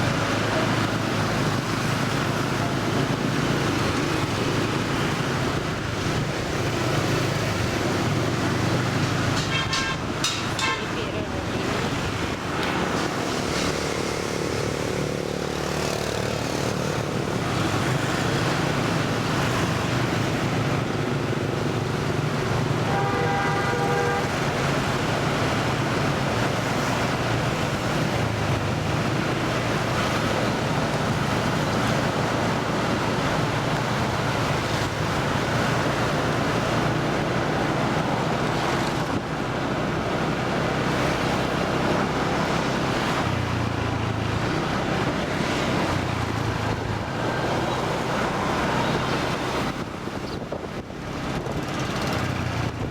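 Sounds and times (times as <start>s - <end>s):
road noise: 0.0s - 52.9s
rushing wind: 0.0s - 52.9s
short horn tone: 22.9s - 24.3s.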